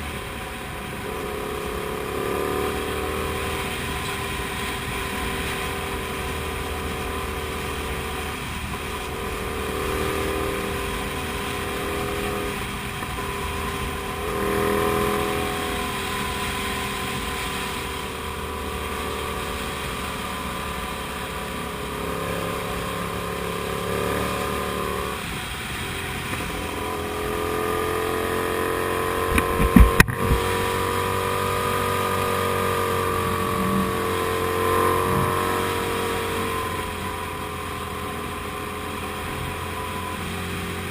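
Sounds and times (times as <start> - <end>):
motorcycle engine while riding: 0.0 - 40.9
wind rush: 29.2 - 30.9
sharp thumps: 29.3 - 30.5.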